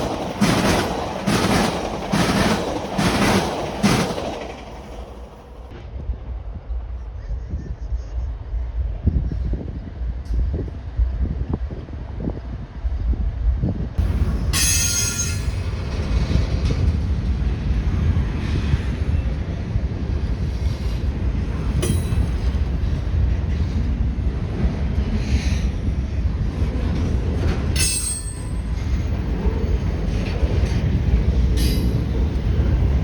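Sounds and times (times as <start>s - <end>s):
train cars rumbling past: 0.0s - 33.0s
wheel squeals: 14.6s - 15.8s.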